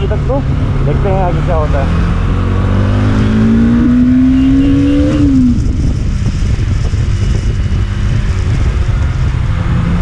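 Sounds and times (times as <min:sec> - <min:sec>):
motorcycle engine accelerating: 0:00.0 - 0:10.0
wind and road noise: 0:00.0 - 0:10.0.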